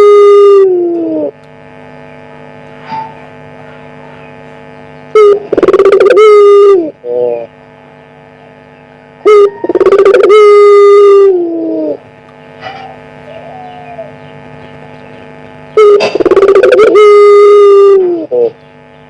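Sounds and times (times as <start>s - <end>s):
dove cooing loudly: 0.0s - 1.4s, 5.1s - 7.5s, 9.2s - 14.4s, 15.2s - 18.6s
steady electrical hum: 0.0s - 19.0s.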